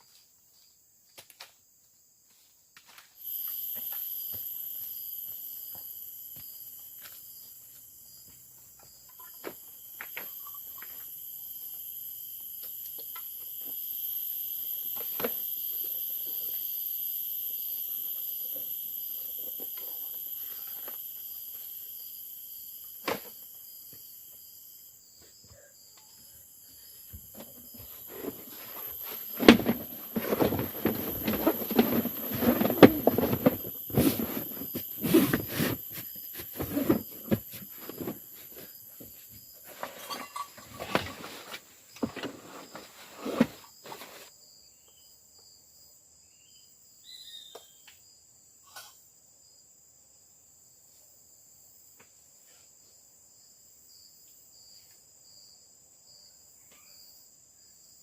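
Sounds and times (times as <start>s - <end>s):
crickets chirring: 0.0s - 50.8s
handling knocks and rustling: 27.1s - 44.3s.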